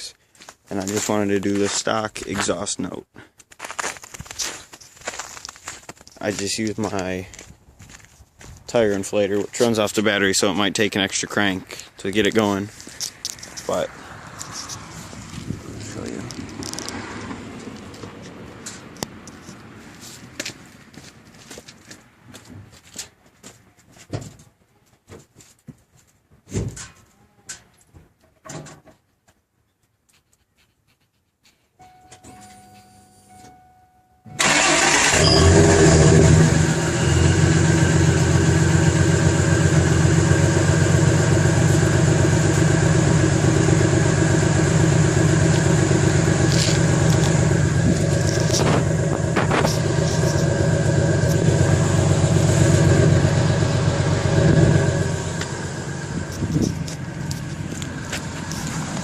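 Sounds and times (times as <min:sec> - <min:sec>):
truck engine starting and idling: 0:10.3 - 0:18.0, 0:34.3 - 0:59.0.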